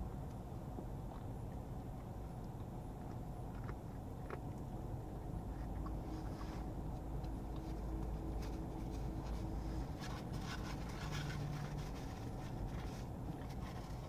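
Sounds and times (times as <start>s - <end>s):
low steady hum: 0.0s - 14.0s
person chewing: 1.0s - 8.4s
paper napkin crinkling: 7.8s - 14.0s.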